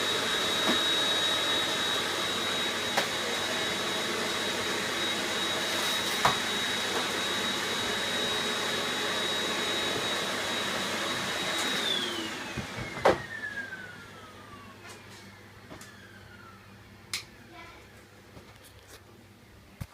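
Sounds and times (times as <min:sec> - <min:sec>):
vacuum cleaner whining: 0:00.0 - 0:18.6.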